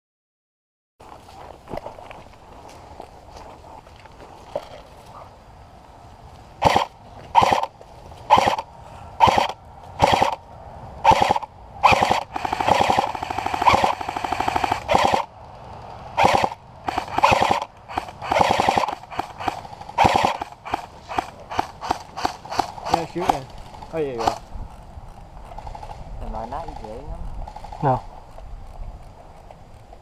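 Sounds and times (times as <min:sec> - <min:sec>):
airsoft gun firing: 0:06.6 - 0:07.7, 0:08.3 - 0:10.4, 0:11.0 - 0:15.3, 0:16.2 - 0:24.5.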